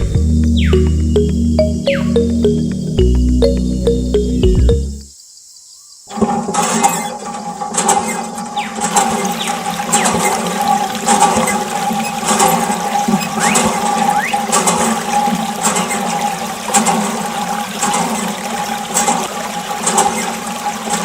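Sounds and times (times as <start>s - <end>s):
water spraying and splashing: 6.4s - 21.0s
pump hum: 8.4s - 21.0s.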